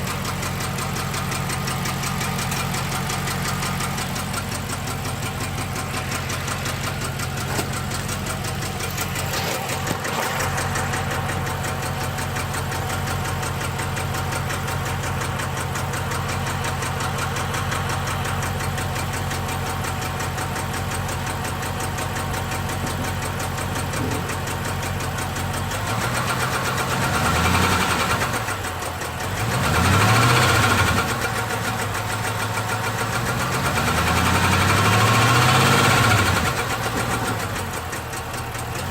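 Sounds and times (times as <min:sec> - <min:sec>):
car engine idling roughly: 0:00.0 - 0:38.9
car engine revving: 0:25.6 - 0:28.6, 0:29.2 - 0:37.7.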